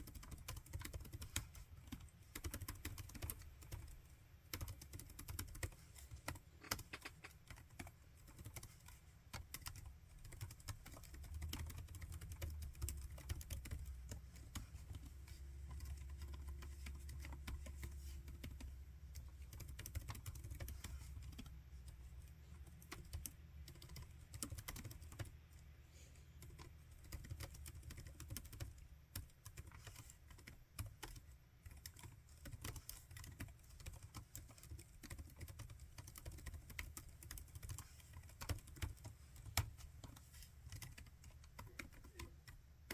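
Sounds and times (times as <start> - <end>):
laptop keyboard typing: 0.0 - 25.7, 26.4 - 42.9.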